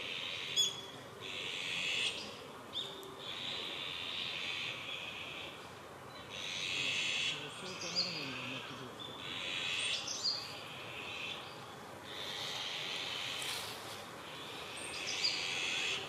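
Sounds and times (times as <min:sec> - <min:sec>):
small birds singing: 0:00.0 - 0:16.0.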